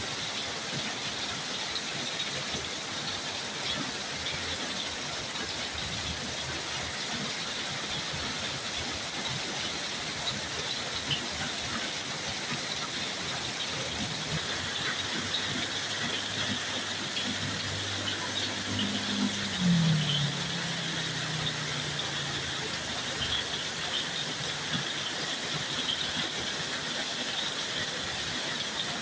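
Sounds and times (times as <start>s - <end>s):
heavy rain hissing: 0.0s - 29.0s
low engine hum: 13.9s - 24.7s.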